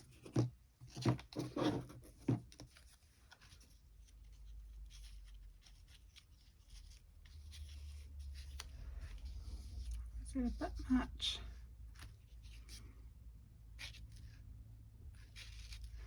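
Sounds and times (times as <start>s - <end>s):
paper rustling: 0.0s - 10.6s, 15.1s - 16.0s.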